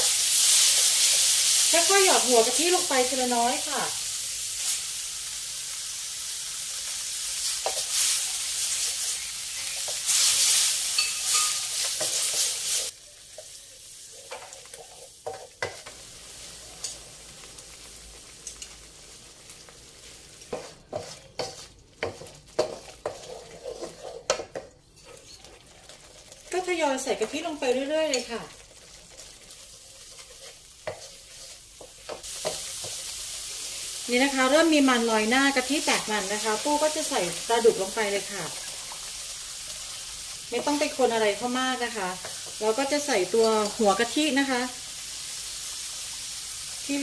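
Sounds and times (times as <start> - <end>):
curry paste sizzling in a wok: 0.0 - 47.0
spatula scraping and knocking wok: 6.5 - 18.8, 19.4 - 44.1.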